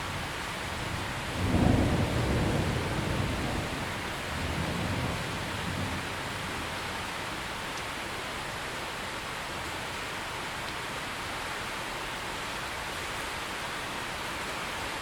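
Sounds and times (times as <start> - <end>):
thunder rumbling: 0.0 - 7.1
heavy rain: 0.0 - 15.0.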